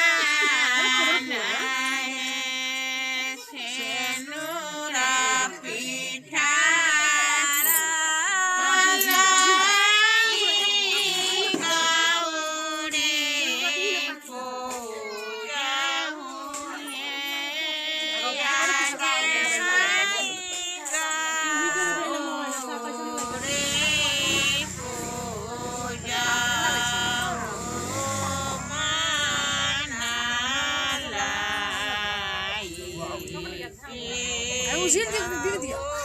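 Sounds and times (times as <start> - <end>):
high-pitched voice singing: 14.7 - 17.5.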